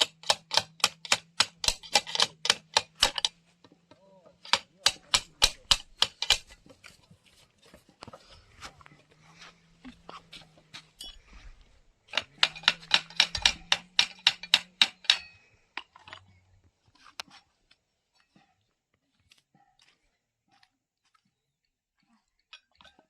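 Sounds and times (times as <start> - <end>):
sharp clicks of hand tool: 0.0 - 3.4, 4.4 - 6.6, 12.1 - 15.3.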